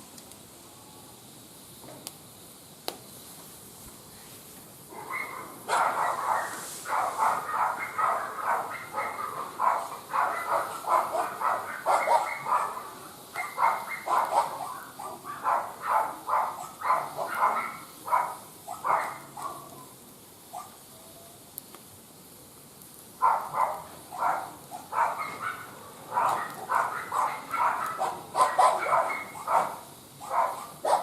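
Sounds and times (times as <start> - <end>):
dog barking: 4.9 - 19.8, 20.5 - 20.8, 23.2 - 31.0.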